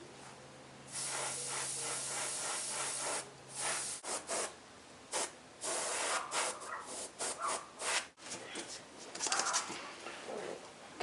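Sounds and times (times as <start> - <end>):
airbrush spraying hiss: 0.9 - 4.5, 5.1 - 8.1.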